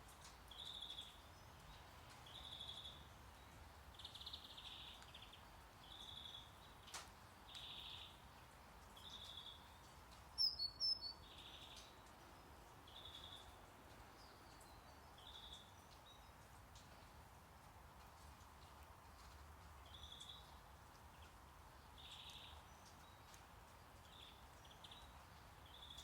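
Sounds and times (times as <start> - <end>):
low steady hiss: 0.0 - 26.0
sharp bird chirps: 10.4 - 11.2
short high chirping call: 10.4 - 11.2.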